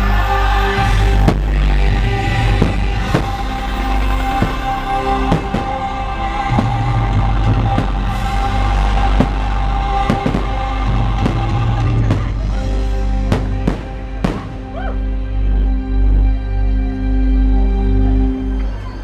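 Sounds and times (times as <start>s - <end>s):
loud show music: 0.0s - 19.0s
fireworks banging: 0.9s - 14.8s.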